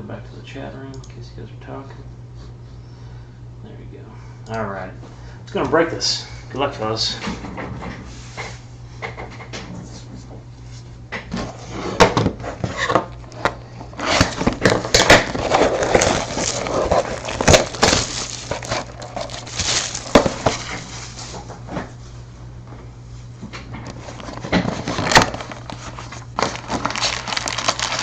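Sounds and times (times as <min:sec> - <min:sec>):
low electrical hum: 0:00.0 - 0:28.0
wrapper crinkling and tearing: 0:14.0 - 0:21.2, 0:24.1 - 0:28.0.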